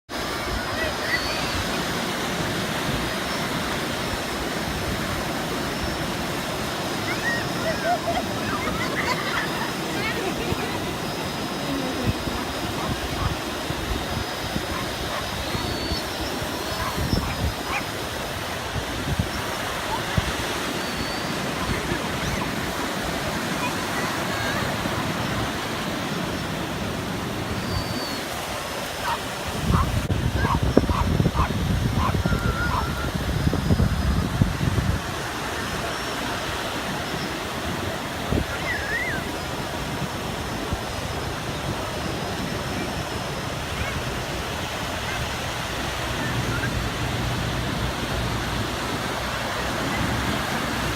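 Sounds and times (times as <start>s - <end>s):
ocean surf rushing: 0.1s - 50.9s
wind buffeting microphone: 0.1s - 50.9s
faint high whine: 3.2s - 18.1s
short warbling squeal: 7.0s - 13.4s, 20.7s - 22.6s, 32.0s - 34.2s, 38.3s - 39.4s.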